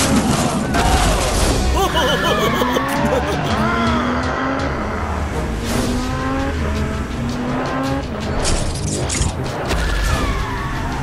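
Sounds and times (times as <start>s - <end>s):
sports car engine revving: 3.5s - 8.4s.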